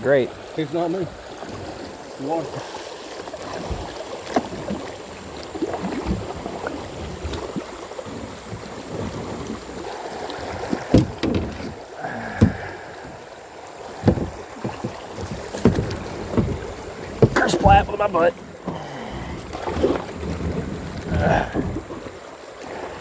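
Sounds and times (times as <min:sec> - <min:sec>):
paddle splashing in water: 0:00.0 - 0:23.0
sharp knocks: 0:10.7 - 0:11.8, 0:14.0 - 0:18.2.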